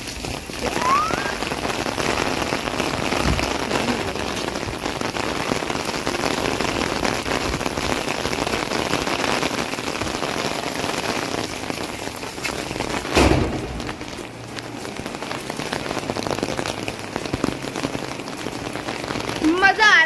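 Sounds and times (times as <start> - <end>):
heavy rain on an umbrella: 0.0 - 20.0
rain splashing on wet ground: 0.0 - 20.0.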